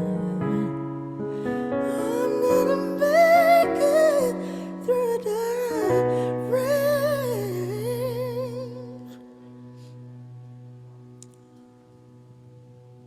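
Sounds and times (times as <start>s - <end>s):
person singing with vibrato: 0.0s - 9.8s.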